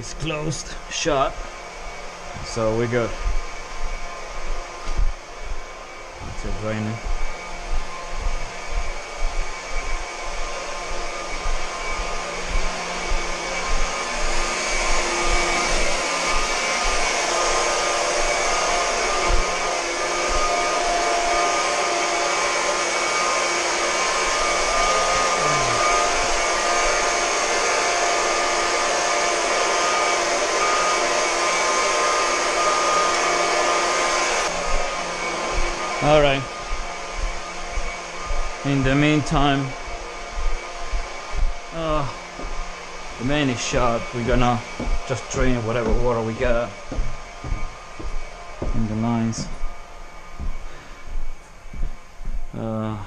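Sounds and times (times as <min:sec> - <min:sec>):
faint low thumps: 0:43.8 - 0:49.8.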